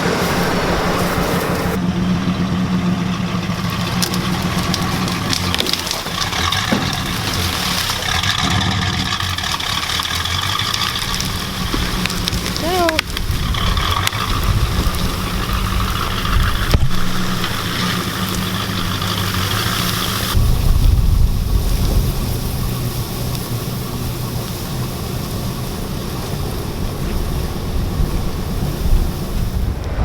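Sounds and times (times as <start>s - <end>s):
truck engine running: 0.0s - 30.0s
wind rushing: 27.6s - 30.0s.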